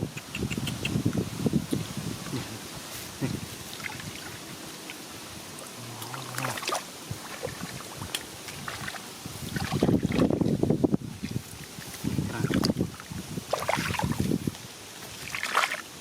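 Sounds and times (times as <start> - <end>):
shallow water sloshing: 3.2 - 15.9.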